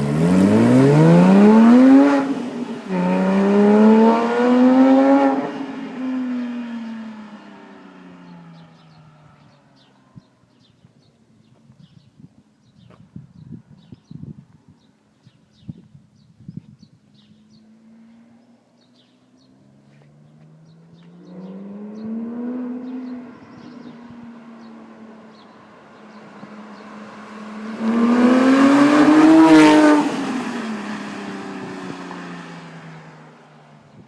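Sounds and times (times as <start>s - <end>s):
sports car accelerating past: 0.0s - 9.5s, 17.6s - 33.7s.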